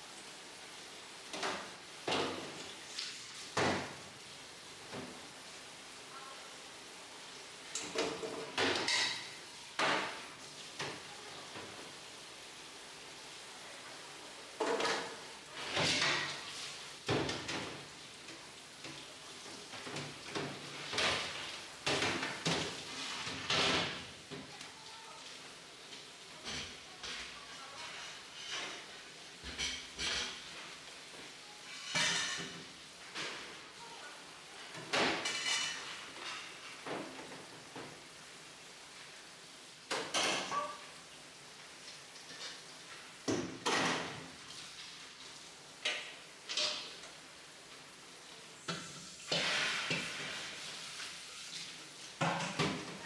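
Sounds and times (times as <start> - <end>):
metal kitchenware clanking: 7.8 - 10.2, 31.7 - 32.6, 34.9 - 36.6, 45.9 - 47.0.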